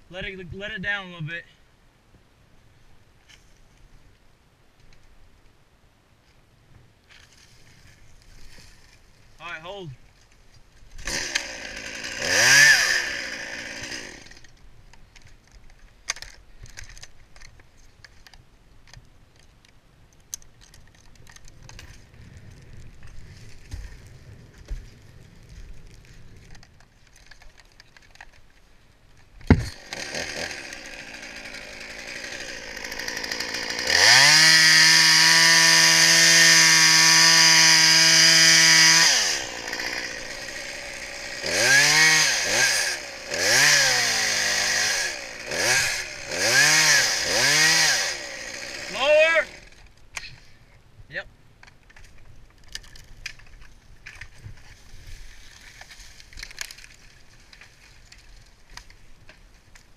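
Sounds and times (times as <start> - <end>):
chainsaw revving: 11.0 - 14.5, 29.6 - 49.8.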